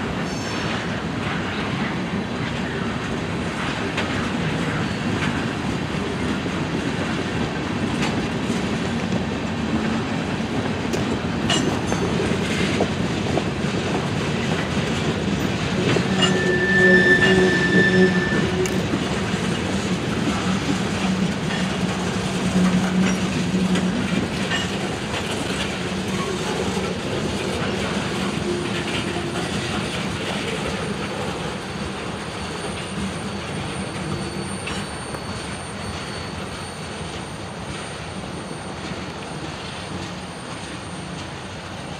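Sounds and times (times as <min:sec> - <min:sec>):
freight train wheels clacking: 0:00.0 - 0:41.9
thin high wheel squeal: 0:15.4 - 0:19.8, 0:20.4 - 0:24.8, 0:27.6 - 0:41.6.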